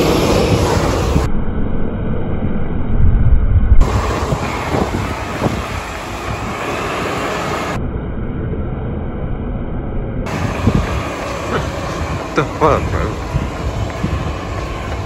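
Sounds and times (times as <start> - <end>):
wind buffeting microphone: 0.0 - 1.3, 3.0 - 7.8, 10.2 - 15.0.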